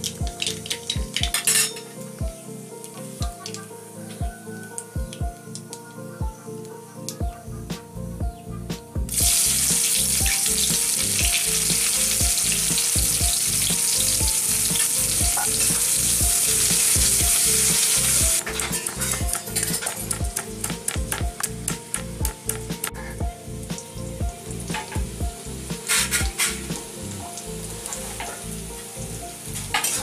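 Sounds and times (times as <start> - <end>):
background music: 0.0 - 30.0
onion sizzling in hot oil: 9.1 - 30.0.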